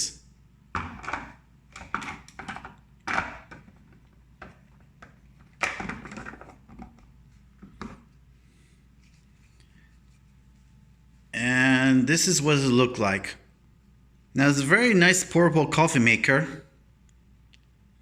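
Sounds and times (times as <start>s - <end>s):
plastic parts clicking and knocking: 0.7s - 8.1s.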